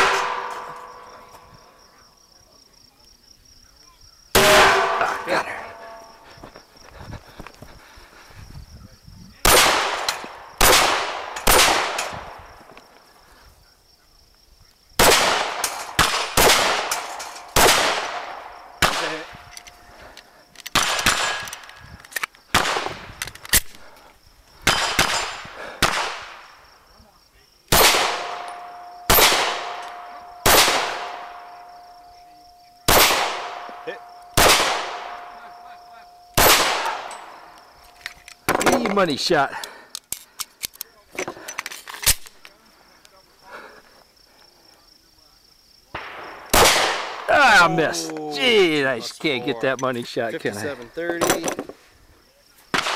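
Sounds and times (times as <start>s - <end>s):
pistol shots: 0.0s - 1.1s, 4.4s - 6.2s, 9.4s - 12.4s, 15.0s - 19.4s, 20.7s - 21.6s, 22.5s - 23.7s, 24.6s - 26.6s, 27.7s - 31.8s, 32.8s - 37.6s, 46.0s - 47.3s.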